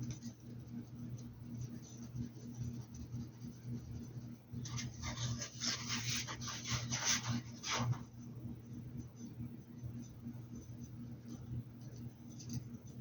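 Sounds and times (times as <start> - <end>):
steady low hum: 0.0 - 13.0
paintbrush scratching: 1.6 - 8.1.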